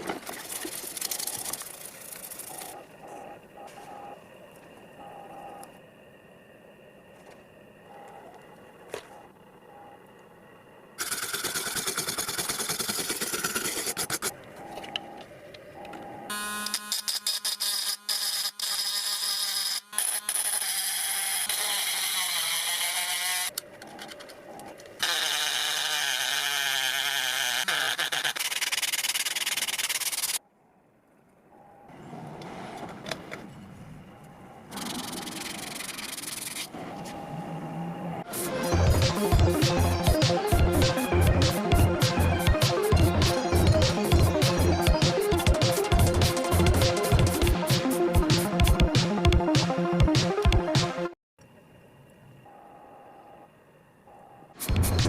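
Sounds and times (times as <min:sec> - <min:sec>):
sanding and rubbing: 0:11.0 - 0:14.3, 0:27.4 - 0:30.4, 0:34.8 - 0:36.7
power tool whirring: 0:16.3 - 0:23.5.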